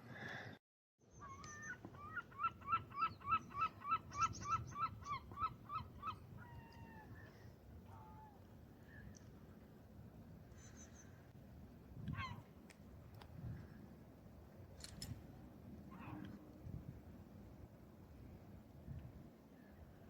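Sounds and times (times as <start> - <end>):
gull calling: 1.2 - 7.2.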